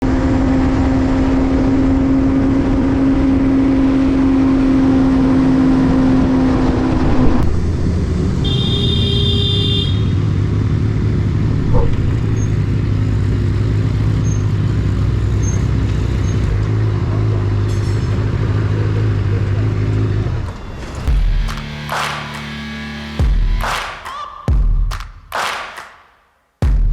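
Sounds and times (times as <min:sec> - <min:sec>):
motorcycle engine running: 0:07.5 - 0:23.6.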